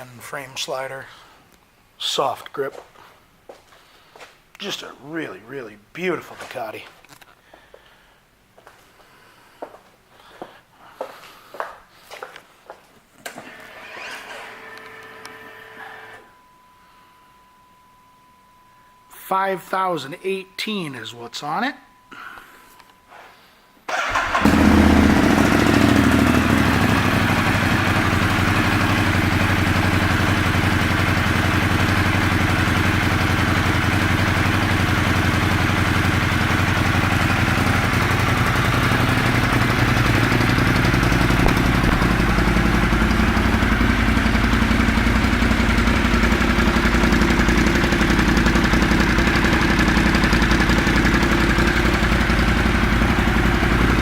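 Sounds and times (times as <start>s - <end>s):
motorcycle engine starting and idling: 13.2s - 15.2s, 23.9s - 54.0s.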